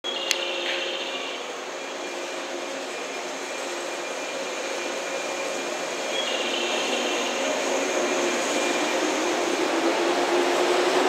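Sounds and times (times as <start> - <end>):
electric train running noise: 0.0 - 11.0
thin high whine: 0.0 - 11.0.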